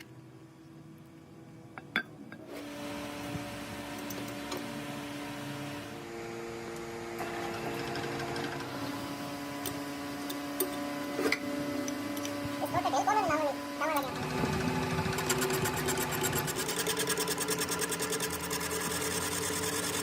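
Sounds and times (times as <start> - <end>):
workshop machine humming and whining: 0.0 - 20.0.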